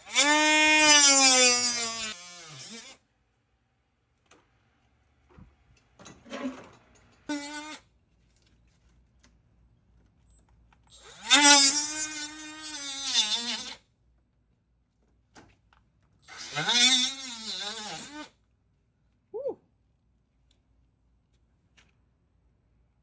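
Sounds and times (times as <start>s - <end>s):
power tool whining: 0.0s - 3.0s, 10.9s - 13.8s, 16.3s - 18.3s.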